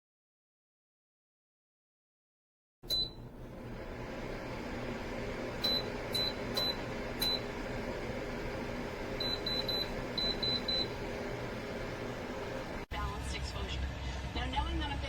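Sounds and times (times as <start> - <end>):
heater low running hum: 2.8 - 13.7.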